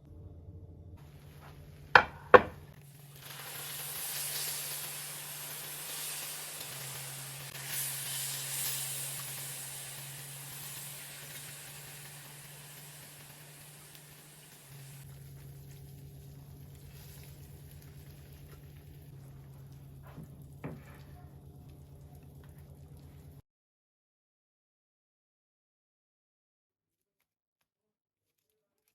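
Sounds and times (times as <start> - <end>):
hot food sizzling: 1.0 - 23.4
sharp knocks: 2.0 - 2.7.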